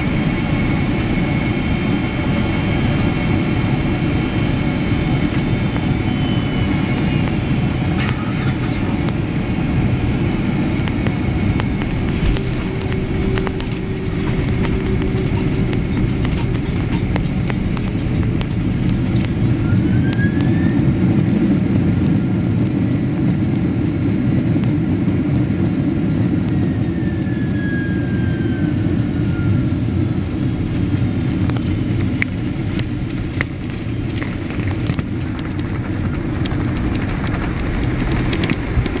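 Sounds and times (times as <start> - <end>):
faint gliding whines: 0.0 - 21.3
airplane cabin low rumble: 0.0 - 39.0.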